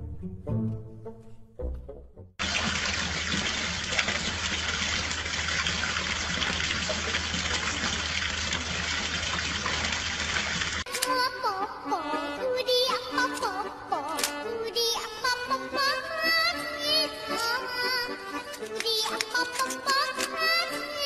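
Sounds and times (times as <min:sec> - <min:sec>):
water pouring and splashing: 0:02.4 - 0:10.9.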